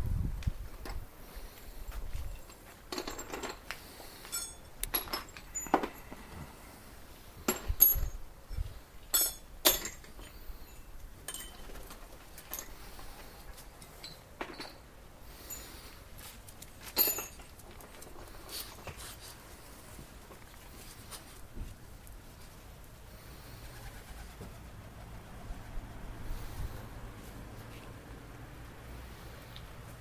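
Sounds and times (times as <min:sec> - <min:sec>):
metal tools clinking and knocking: 0:02.4 - 0:06.1, 0:07.5 - 0:08.2, 0:09.1 - 0:12.8, 0:13.8 - 0:15.8, 0:16.8 - 0:18.0.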